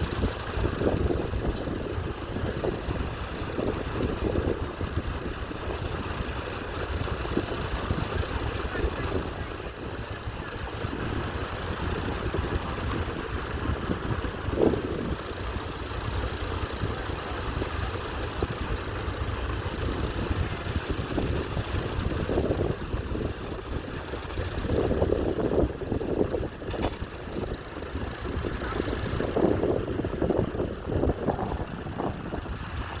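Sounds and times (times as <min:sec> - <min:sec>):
tractor engine pulsing rumble: 0:00.0 - 0:33.0.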